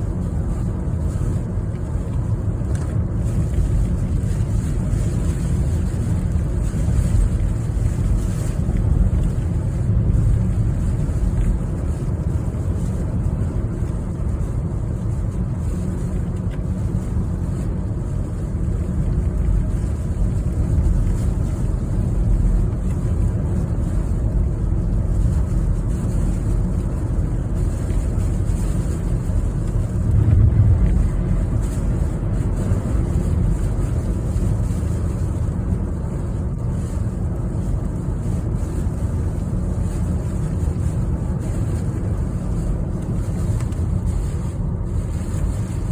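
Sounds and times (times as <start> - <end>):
road travel rumble: 0.0 - 45.9
strong wind: 28.8 - 36.4.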